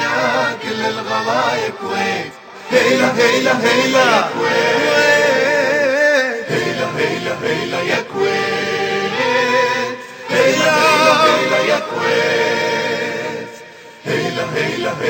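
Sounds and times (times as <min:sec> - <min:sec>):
choir singing children's song: 0:00.0 - 0:15.0.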